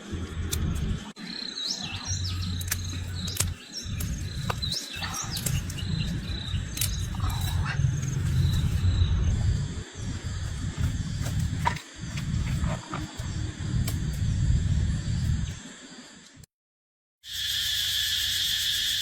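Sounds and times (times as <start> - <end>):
bass-heavy background music: 0.0 - 1.2, 1.9 - 12.8
small birds chirping: 0.0 - 16.0
sharp clicks: 2.0 - 7.6.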